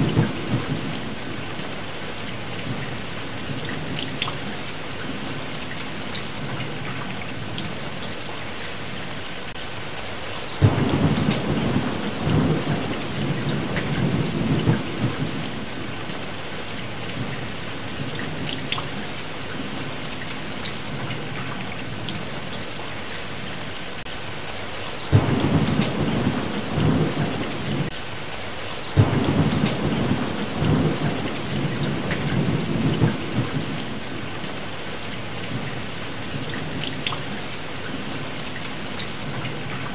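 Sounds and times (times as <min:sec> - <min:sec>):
thunder cracking and rumbling: 0:00.0 - 0:01.7, 0:10.6 - 0:16.2, 0:25.1 - 0:28.0, 0:29.0 - 0:34.3
steady rain: 0:00.0 - 0:39.9.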